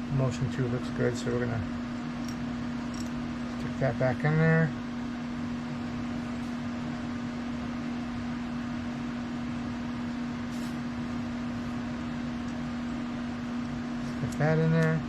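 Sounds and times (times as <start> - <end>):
motor hum: 0.0 - 8.3.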